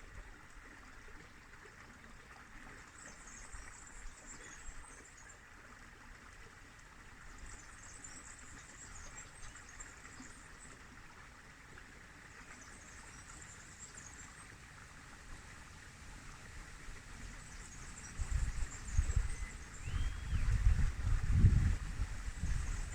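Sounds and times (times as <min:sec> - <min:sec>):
river water flowing: 0:00.0 - 0:22.9
wind buffeting microphone: 0:16.9 - 0:22.9.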